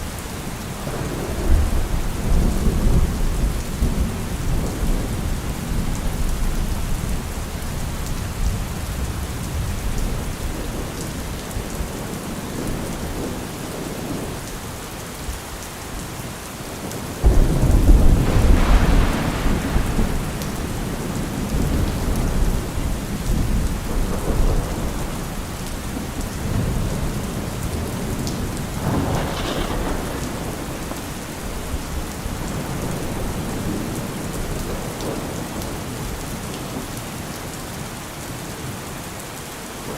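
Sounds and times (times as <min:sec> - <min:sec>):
steady rain falling: 0:00.0 - 0:39.9
rolling thunder: 0:00.6 - 0:14.4, 0:17.1 - 0:36.8
loud thunder crack: 0:17.2 - 0:25.4, 0:26.0 - 0:35.2.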